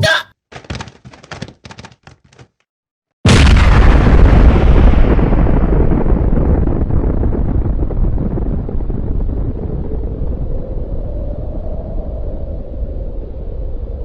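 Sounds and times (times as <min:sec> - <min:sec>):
explosion rumble: 0:03.3 - 0:10.9.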